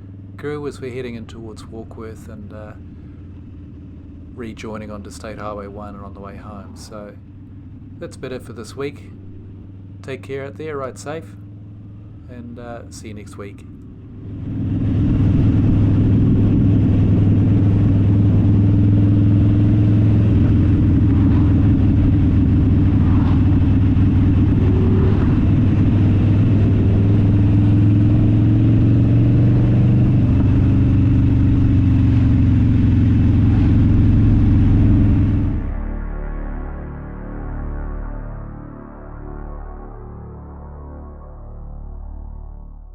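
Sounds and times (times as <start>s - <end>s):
motorcycle engine droning: 0.0s - 42.9s.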